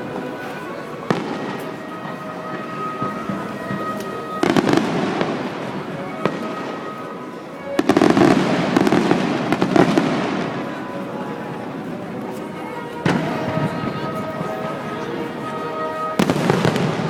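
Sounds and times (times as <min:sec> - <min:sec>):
fireworks bursting and crackling: 0:00.0 - 0:10.9, 0:11.5 - 0:17.0
music with steady tones: 0:11.7 - 0:17.0.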